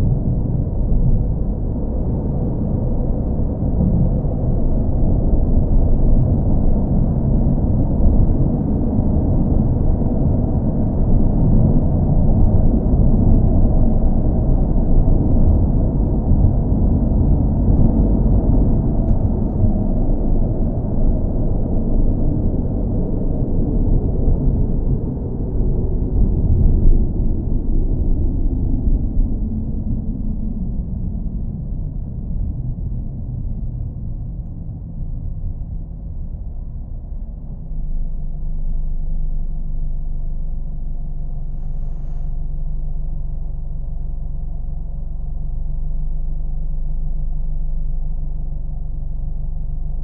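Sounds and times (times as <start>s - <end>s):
car engine rumbling: 0.0s - 50.0s.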